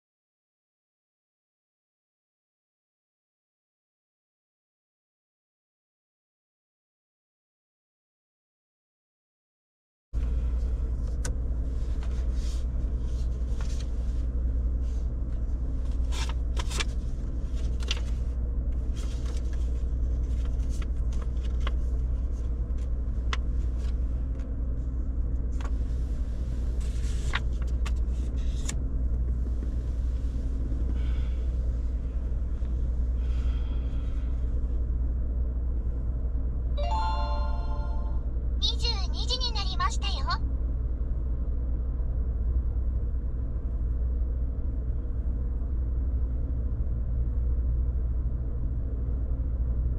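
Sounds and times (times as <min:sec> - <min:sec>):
vehicle rumbling: 0:10.2 - 0:49.9.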